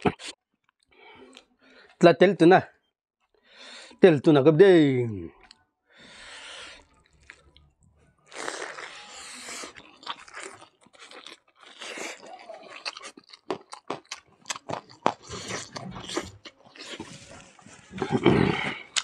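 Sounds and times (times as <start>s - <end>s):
open-mouthed chewing and crunching: 5.4s - 19.0s.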